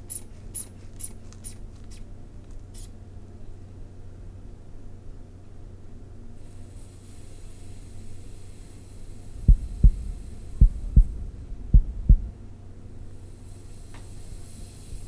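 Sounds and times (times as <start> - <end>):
steady low hum: 0.0 - 15.0
low heartbeat thumps: 9.3 - 12.7.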